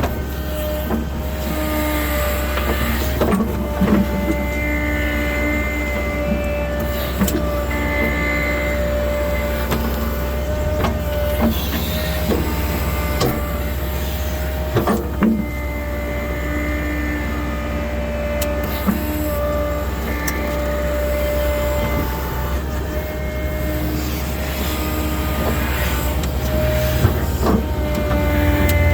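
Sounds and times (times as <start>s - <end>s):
constant whine: 0.0s - 28.9s
diesel engine running: 0.0s - 28.9s.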